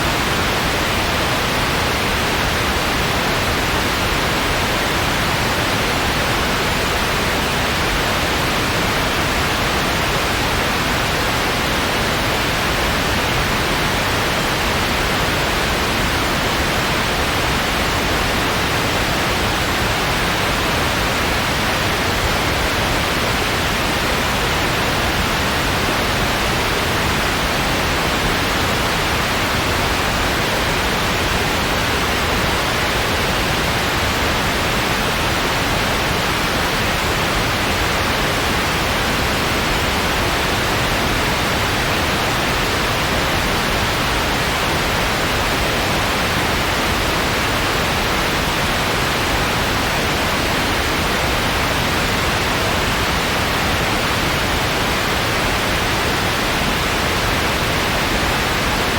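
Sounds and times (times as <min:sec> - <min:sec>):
synthetic white noise hiss: 0:00.0 - 0:58.9.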